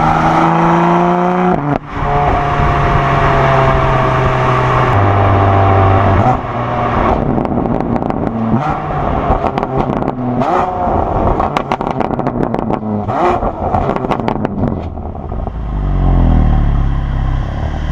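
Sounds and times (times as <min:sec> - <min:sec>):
car engine revving: 0:00.0 - 0:17.9
exhaust pops and crackles: 0:07.1 - 0:08.4, 0:11.2 - 0:15.5.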